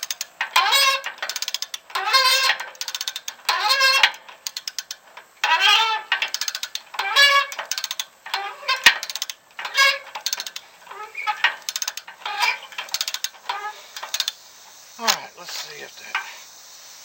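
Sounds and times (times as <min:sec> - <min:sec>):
wrench squealing on bolt: 0:00.0 - 0:14.4
ratchet clicks: 0:00.0 - 0:16.4.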